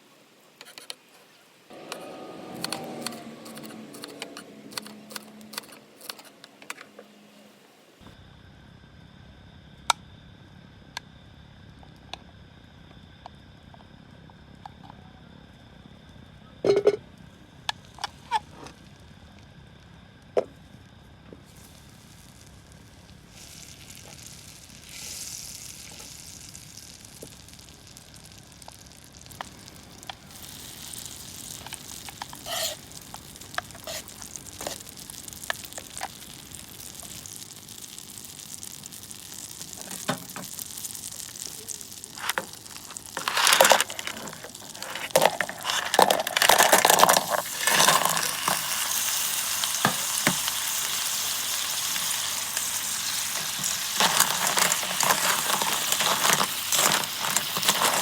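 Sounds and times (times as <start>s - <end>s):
food sizzling in a pan: 1.7s - 6.4s, 21.4s - 58.0s
utensils clicking: 1.7s - 6.9s, 43.2s - 48.9s, 51.9s - 58.0s
stirring in a pan: 31.0s - 36.2s, 41.9s - 58.0s.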